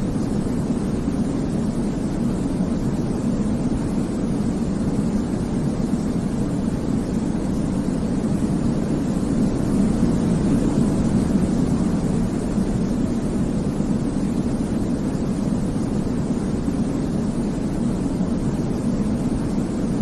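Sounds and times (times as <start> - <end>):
deep steady noise: 0.0 - 20.0.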